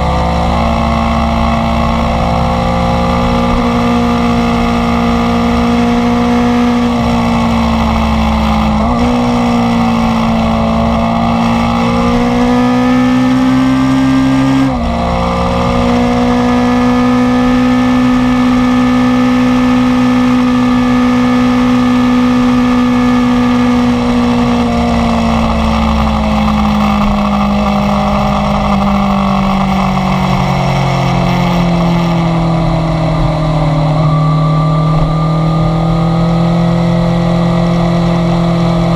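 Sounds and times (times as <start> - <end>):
sport motorcycle engine revving: 0.0 - 38.9.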